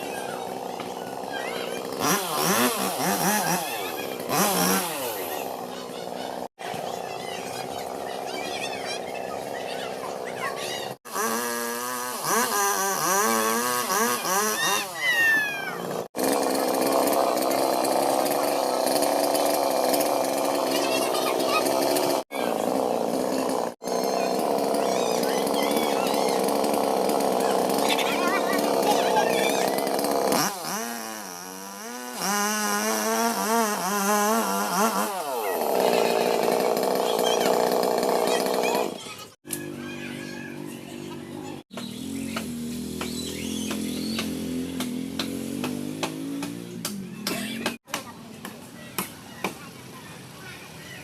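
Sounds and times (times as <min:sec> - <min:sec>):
chainsaw engine revving: 0:00.0 - 0:47.9.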